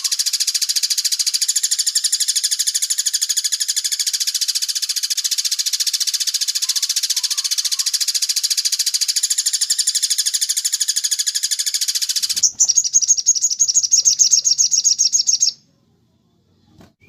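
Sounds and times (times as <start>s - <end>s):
bird rattling trill: 0.0s - 15.5s.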